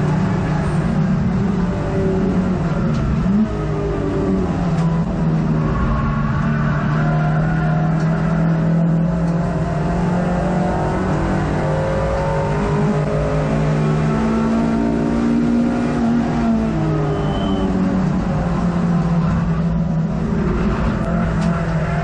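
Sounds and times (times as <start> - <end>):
racing car engine from inside: 0.0 - 22.0.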